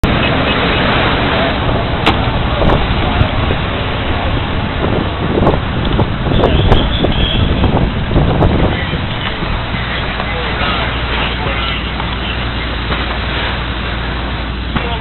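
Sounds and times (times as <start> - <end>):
truck engine and road rumble: 0.0 - 15.0
wind buffeting microphone: 0.0 - 15.0.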